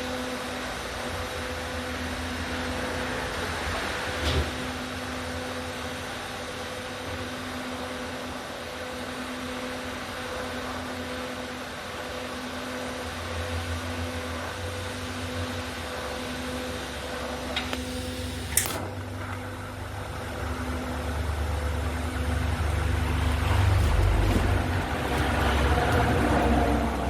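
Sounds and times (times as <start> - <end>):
welding machine electrical hum: 0.0 - 27.0
arc welding hiss: 17.6 - 18.8
short click: 17.6 - 18.9.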